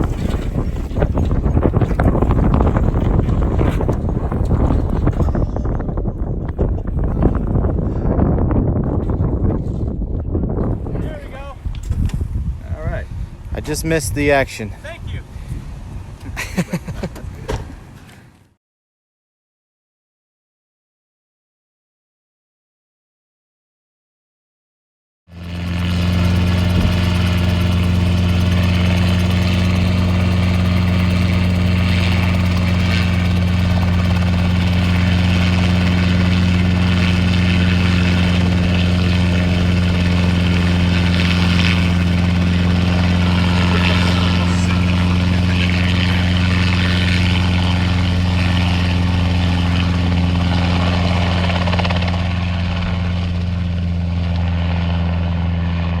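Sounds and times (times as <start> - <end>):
vehicle engine droning: 25.6 - 56.0.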